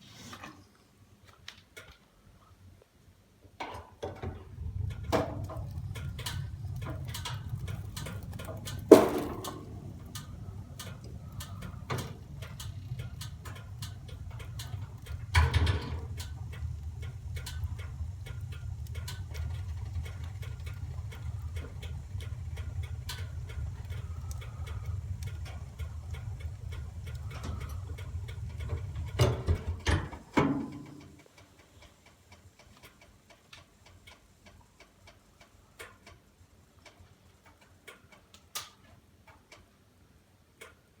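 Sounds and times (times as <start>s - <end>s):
steady low rumble: 4.2s - 31.2s
fireplace fire crackling: 4.2s - 40.9s.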